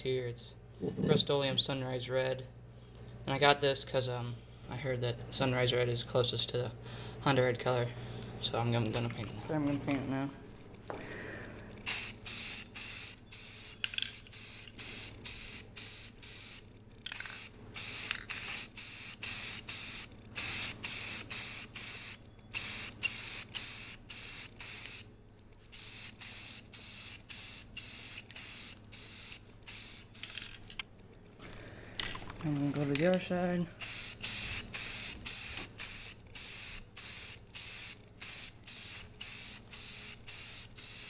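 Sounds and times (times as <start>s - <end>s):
spray paint can spraying: 11.8s - 25.1s, 25.7s - 30.6s, 33.8s - 41.0s.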